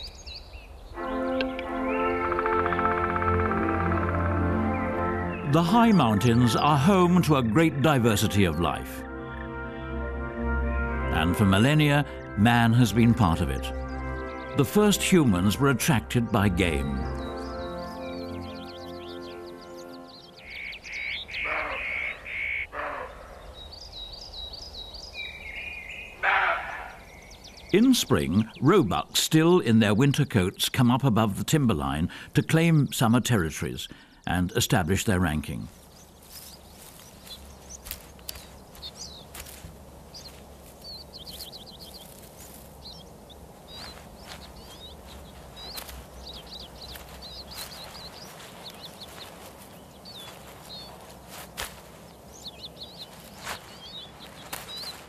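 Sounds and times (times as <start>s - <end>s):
harsh noisy bird calls: 0.0s - 9.4s, 11.7s - 55.0s
low outdoor background: 0.0s - 55.0s
songbirds chirping and trilling: 0.0s - 55.0s
short bird calls: 17.2s - 27.8s, 35.6s - 55.0s.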